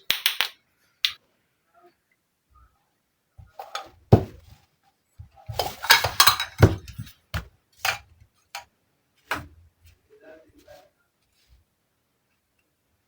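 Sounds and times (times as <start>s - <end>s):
toy dishes clicking and clinking: 5.5s - 7.1s.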